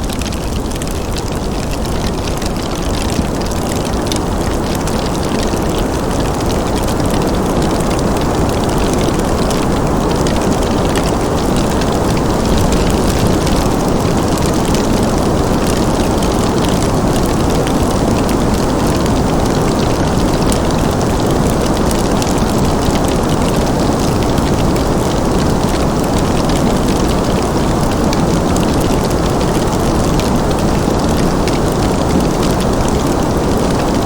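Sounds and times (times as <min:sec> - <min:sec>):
faint fire crackles: 0:00.0 - 0:34.0
low rushing fire noise: 0:09.0 - 0:17.4.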